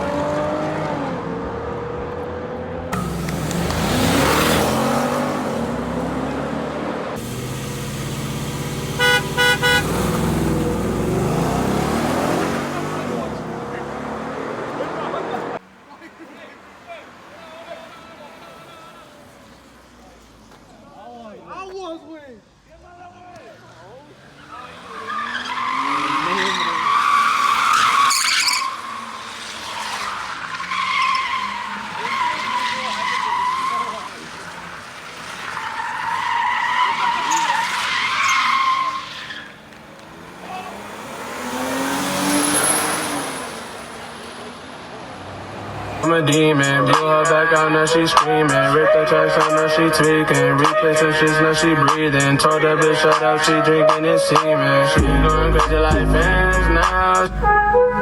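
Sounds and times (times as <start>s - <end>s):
car engine revving: 0.0s - 15.6s, 24.1s - 53.7s, 55.0s - 58.0s
car horn honks: 7.6s - 10.8s, 56.9s - 58.0s.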